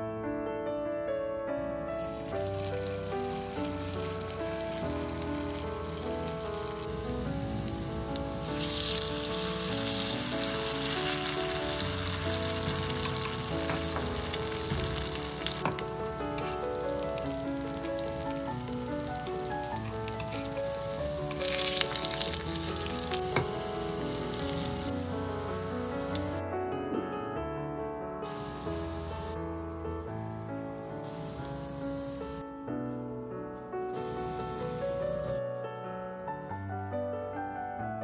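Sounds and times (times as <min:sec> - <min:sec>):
background music: 0:00.0 - 0:38.0
pancakes sizzling in hot oil: 0:02.0 - 0:26.4, 0:28.3 - 0:29.4, 0:31.1 - 0:32.4, 0:34.0 - 0:35.4.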